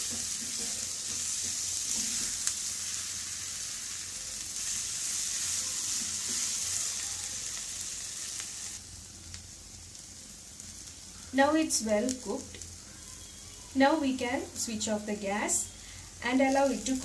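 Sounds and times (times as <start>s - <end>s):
stirring food in pan: 0.0s - 3.6s
food sizzling in oil: 0.0s - 17.0s.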